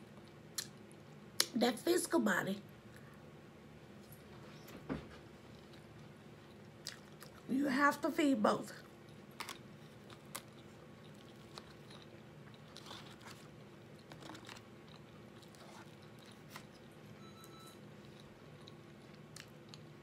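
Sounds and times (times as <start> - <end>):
faint chewing: 4.0 - 7.5, 8.8 - 20.0.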